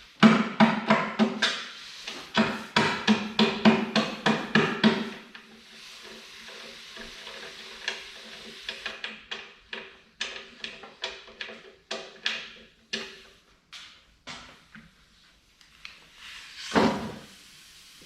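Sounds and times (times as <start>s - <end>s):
steady hiss: 1.4s - 9.9s, 15.0s - 18.0s.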